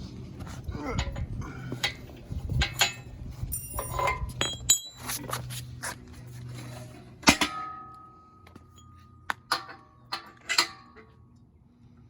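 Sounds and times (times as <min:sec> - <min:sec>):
metal tools clinking and clanking: 0:01.0 - 0:05.6, 0:06.6 - 0:11.2.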